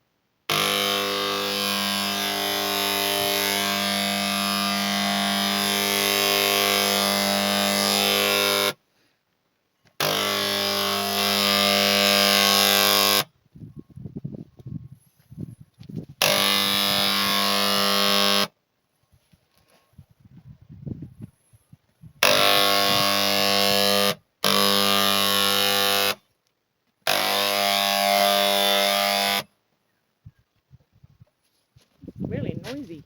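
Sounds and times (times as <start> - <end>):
electric tool buzzing: 0.5 - 8.8, 10.0 - 13.3, 16.2 - 18.6, 22.2 - 26.2, 27.0 - 29.5.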